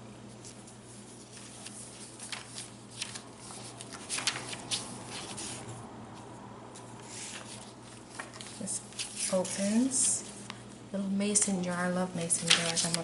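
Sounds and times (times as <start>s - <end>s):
pages turning: 0.3s - 5.7s, 6.8s - 10.6s, 12.4s - 13.0s
paper rustling: 0.3s - 10.6s, 12.2s - 13.0s.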